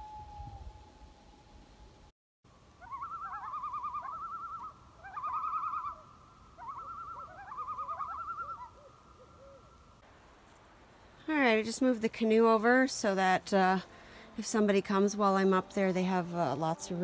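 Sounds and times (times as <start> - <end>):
loon tremolo call: 2.8 - 9.8.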